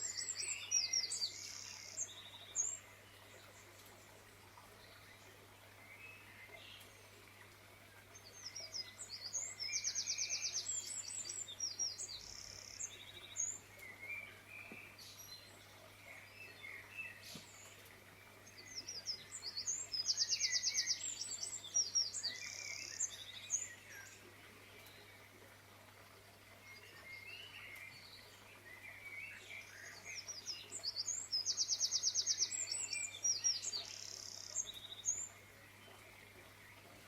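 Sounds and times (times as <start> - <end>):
songbird trilling song: 0.0 - 2.9, 8.2 - 17.7, 18.4 - 25.1, 26.7 - 36.2.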